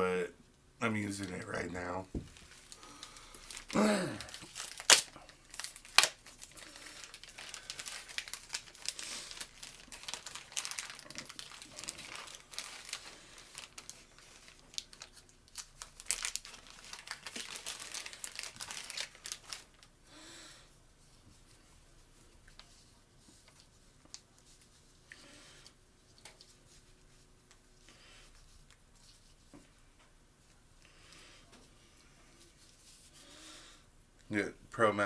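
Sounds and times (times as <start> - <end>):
packaging crinkling and tearing: 2.2 - 20.0.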